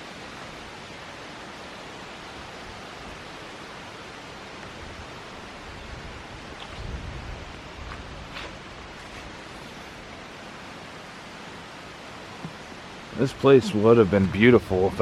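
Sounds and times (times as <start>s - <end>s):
creek water flowing: 0.0s - 15.0s
low bumps: 12.3s - 15.0s.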